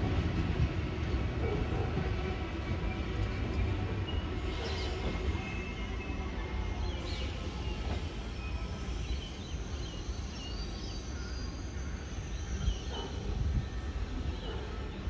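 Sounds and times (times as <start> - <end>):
distant trains rumbling: 0.0 - 15.0.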